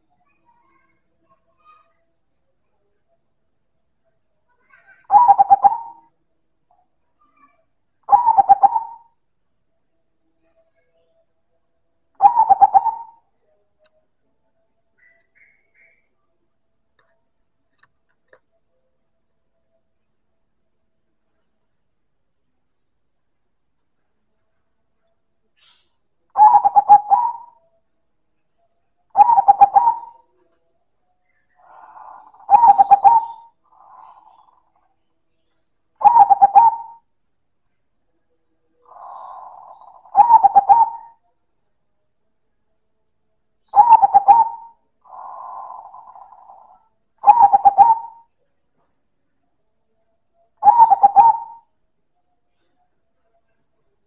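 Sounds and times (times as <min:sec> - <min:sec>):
soft dove coo: 0:04.6 - 0:06.1, 0:08.1 - 0:09.2, 0:12.2 - 0:13.2, 0:25.6 - 0:27.6, 0:29.2 - 0:30.5, 0:31.6 - 0:34.6, 0:36.0 - 0:37.0, 0:38.9 - 0:41.2, 0:43.8 - 0:48.3, 0:50.6 - 0:51.7
dove cooing song: 0:04.7 - 0:06.1, 0:08.0 - 0:09.2, 0:12.2 - 0:13.2, 0:25.6 - 0:27.6, 0:29.1 - 0:30.5, 0:31.4 - 0:34.8, 0:36.0 - 0:37.1, 0:38.8 - 0:41.3, 0:43.6 - 0:48.3, 0:50.6 - 0:51.7.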